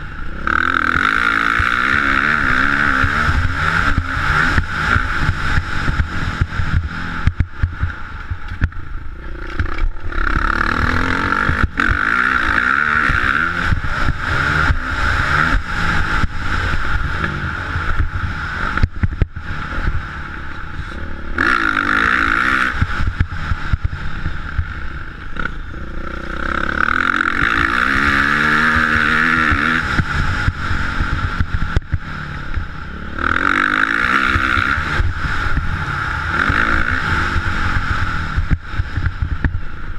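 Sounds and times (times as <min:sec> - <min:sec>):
low rumble: 0:00.0 - 0:39.9
motorcycle engines revving: 0:00.0 - 0:39.9.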